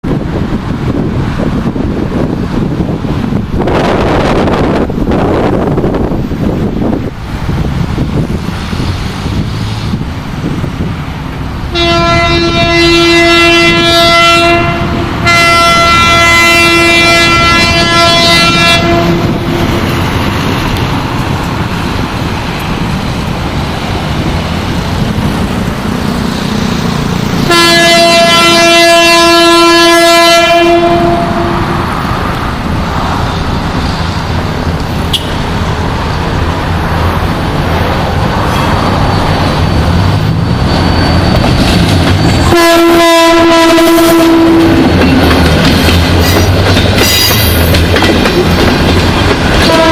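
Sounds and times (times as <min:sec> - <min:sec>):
passenger train rumble: 0:00.0 - 0:49.9
diesel locomotive horn blasts: 0:11.6 - 0:19.8, 0:27.4 - 0:31.9, 0:35.1 - 0:35.4, 0:42.4 - 0:45.1, 0:49.6 - 0:49.9.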